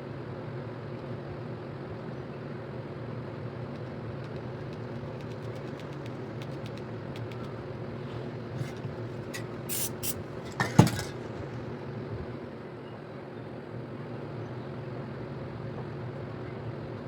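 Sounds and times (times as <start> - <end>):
steady background hum: 0.1 - 17.0
aerosol spray can hissing: 8.6 - 10.3.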